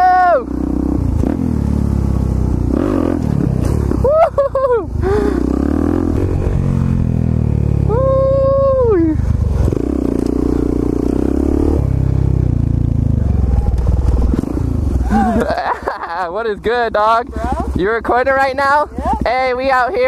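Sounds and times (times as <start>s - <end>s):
person shouting: 0.0s - 0.5s, 7.8s - 9.2s
motorcycle engine revving: 0.0s - 20.0s.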